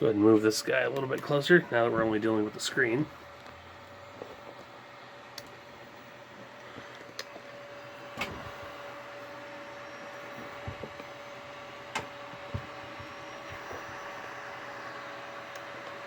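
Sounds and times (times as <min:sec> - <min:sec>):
computer fan hiss: 0:00.0 - 0:16.0
faint constant whine: 0:00.0 - 0:16.0.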